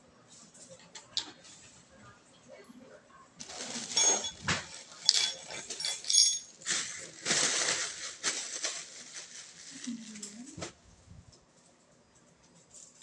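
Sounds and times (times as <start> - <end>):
packaging rustling and handling: 3.4 - 10.8
light metallic clinks: 5.0 - 6.5.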